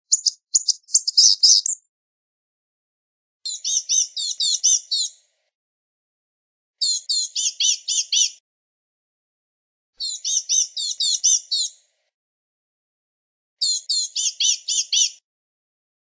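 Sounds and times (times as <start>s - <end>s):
bird singing high-pitched notes: 0.1s - 1.8s, 3.5s - 5.2s, 6.8s - 8.4s, 10.0s - 11.8s, 13.6s - 15.2s.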